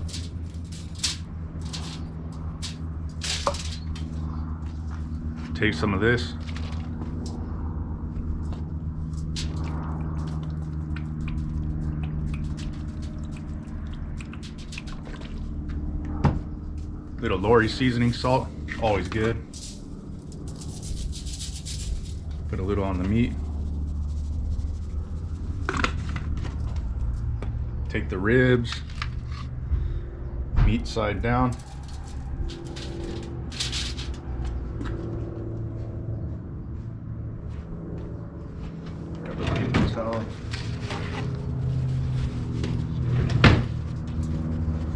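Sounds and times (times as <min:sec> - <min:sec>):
liquid drizzling onto foil: 0:00.0 - 0:03.8
aluminium foil crinkling: 0:00.0 - 0:04.1, 0:18.9 - 0:26.1, 0:31.5 - 0:34.2
low background rumble: 0:00.0 - 0:44.9
low electrical hum: 0:00.0 - 0:44.9
small ticks: 0:09.4 - 0:15.8, 0:19.5 - 0:22.3.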